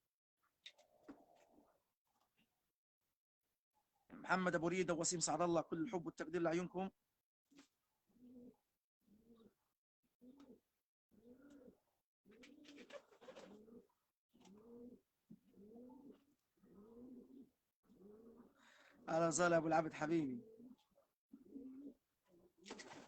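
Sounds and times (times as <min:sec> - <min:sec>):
pigeons cooing: 0:08.1 - 0:19.1, 0:20.3 - 0:23.0.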